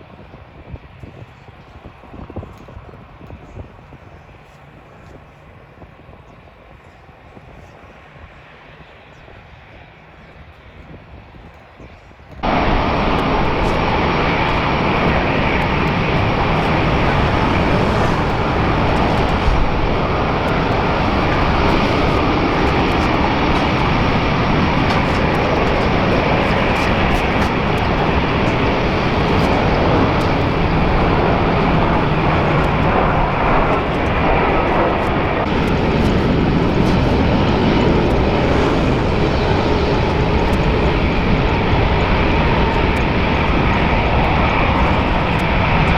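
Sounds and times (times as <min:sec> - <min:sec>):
airliner engines running: 0:12.4 - 0:45.9.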